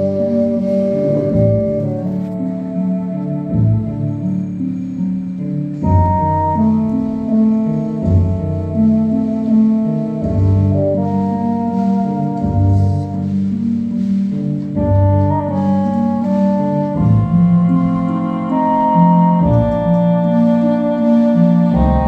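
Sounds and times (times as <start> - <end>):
saxophone melody: 0.0 - 14.1, 14.8 - 22.0
organ-like keyboard chords: 0.0 - 22.0
pulsing bass line: 0.0 - 22.0.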